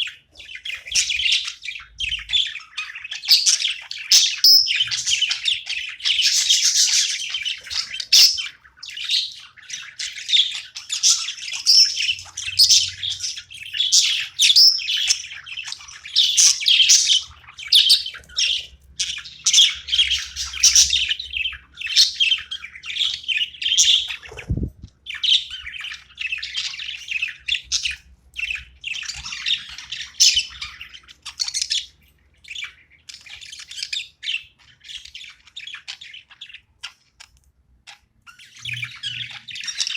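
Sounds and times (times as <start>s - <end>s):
bird squawks: 0.0s - 24.5s, 37.8s - 39.9s
budgerigars chattering: 0.0s - 39.9s.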